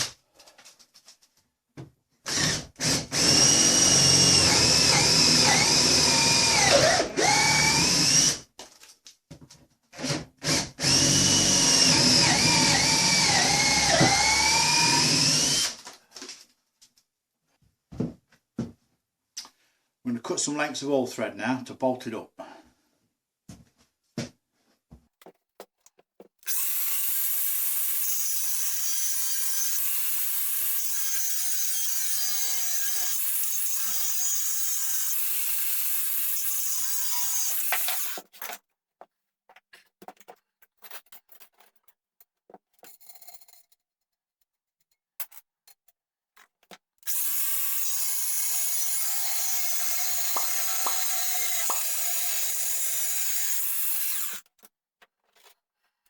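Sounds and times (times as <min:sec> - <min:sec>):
clicks and handling noise: 0:25.2 - 0:26.5, 0:54.4 - 0:55.7
angle grinder cutting steel rod: 0:26.5 - 0:38.2, 0:47.1 - 0:54.5.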